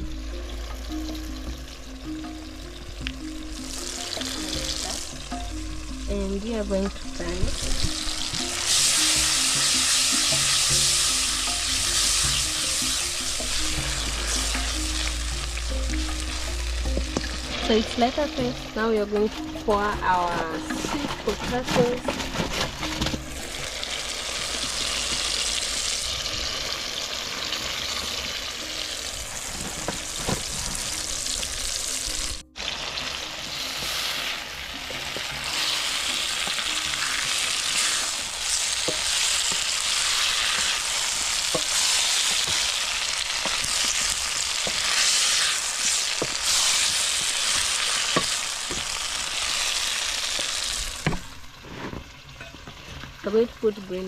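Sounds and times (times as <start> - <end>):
food sizzling in hot oil: 0.0 - 54.0
spoon stirring and scraping pot: 19.1 - 23.7.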